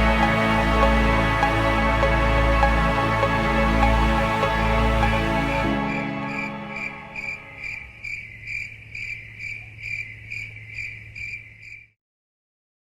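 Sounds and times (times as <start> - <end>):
cricket chirping: 6.3 - 12.0.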